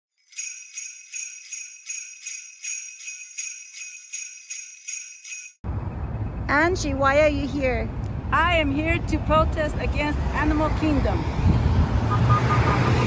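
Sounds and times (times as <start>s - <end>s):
sleigh bells jingling: 0.1s - 5.6s.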